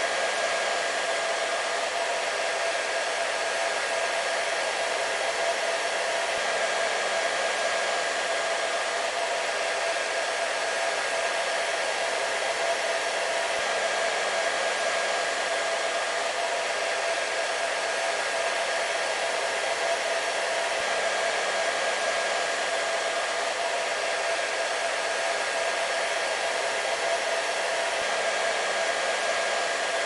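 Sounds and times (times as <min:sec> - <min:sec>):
hair dryer running: 0:00.0 - 0:30.0.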